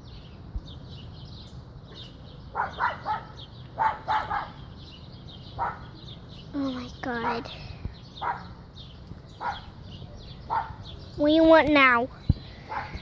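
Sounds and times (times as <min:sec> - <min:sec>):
dog barking: 0:02.5 - 0:04.6, 0:05.6 - 0:05.9, 0:08.2 - 0:08.5, 0:09.4 - 0:09.7, 0:10.5 - 0:10.8, 0:12.7 - 0:13.0.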